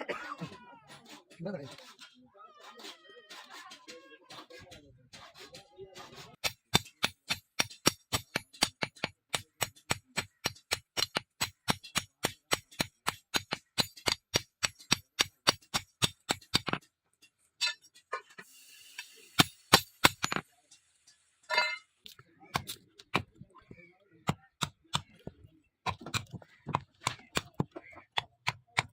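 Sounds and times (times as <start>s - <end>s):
hammer on steel anvil ringing: 21.5s - 21.8s.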